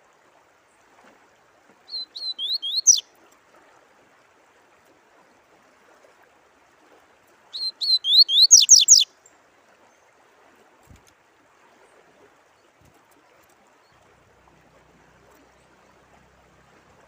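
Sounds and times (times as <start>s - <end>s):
faint running water: 0.0s - 17.0s
songbird singing: 1.9s - 3.1s, 7.5s - 9.1s.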